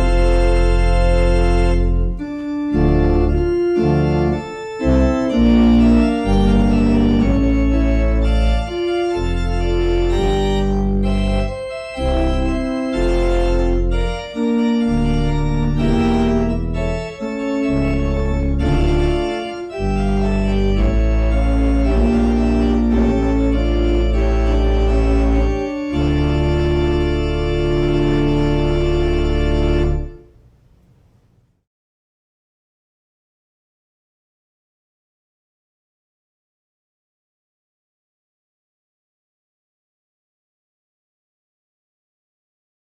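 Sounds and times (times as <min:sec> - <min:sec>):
organ playing full chords: 0:00.0 - 0:30.5.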